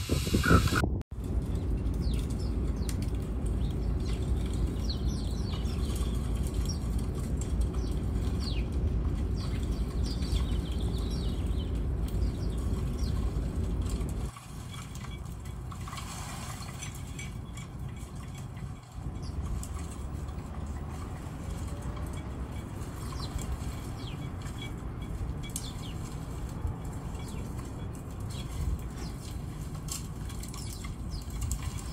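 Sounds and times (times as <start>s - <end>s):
small birds chirping: 0.0s - 15.6s, 16.4s - 31.9s
steady low rumble: 0.0s - 16.0s.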